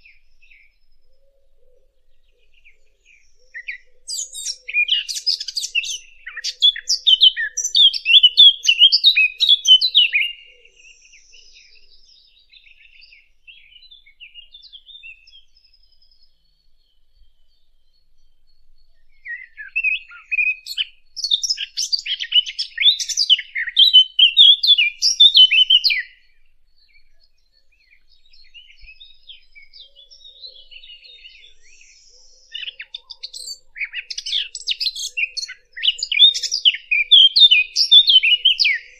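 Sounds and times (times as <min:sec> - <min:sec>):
songbird warbling: 0:01.7 - 0:11.8, 0:19.2 - 0:26.2, 0:27.9 - 0:38.9.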